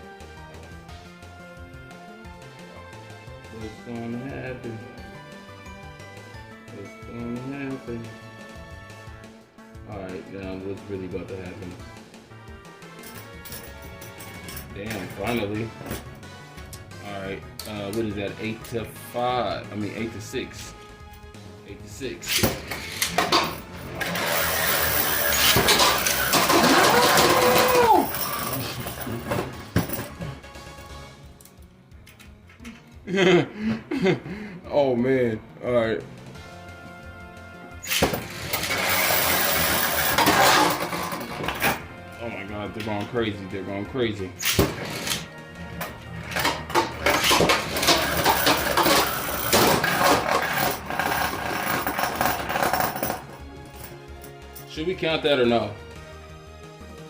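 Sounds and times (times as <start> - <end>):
spinning tops clashing: 22.3 - 29.9, 37.8 - 41.6, 46.4 - 53.3.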